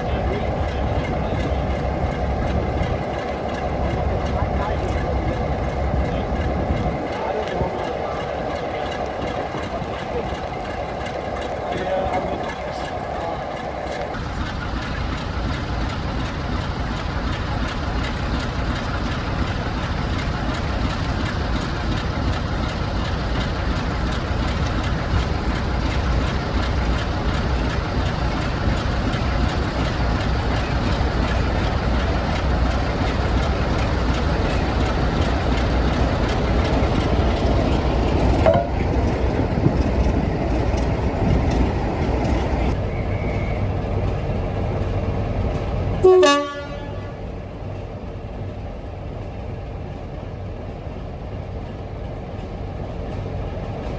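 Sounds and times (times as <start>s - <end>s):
diesel locomotive engine rumble: 0.0s - 53.9s
locomotive horn: 46.0s - 47.2s.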